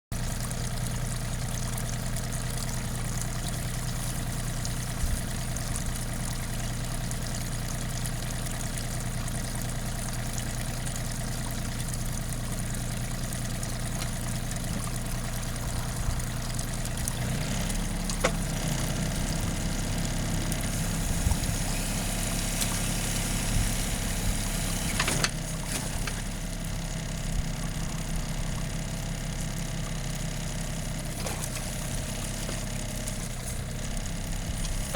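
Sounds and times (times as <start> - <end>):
diesel tractor engine running: 0.2 - 34.9
hydraulic hiss: 20.6 - 25.3.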